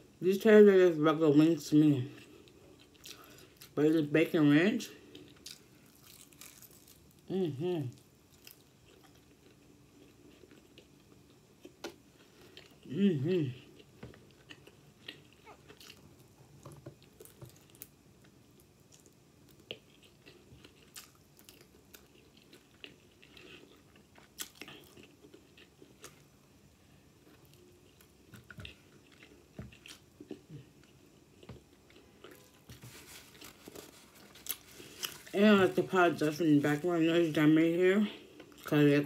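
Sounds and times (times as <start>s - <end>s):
person chewing chicken wings: 5.0s - 7.1s, 8.4s - 12.9s, 13.6s - 16.1s, 17.0s - 26.3s, 27.2s - 35.3s.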